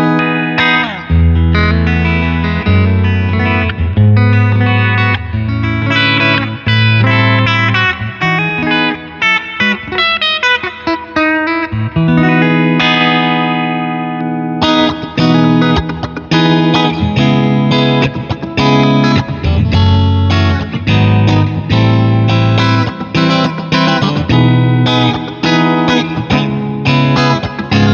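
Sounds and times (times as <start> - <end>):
electric guitar playing: 0.0 - 27.9.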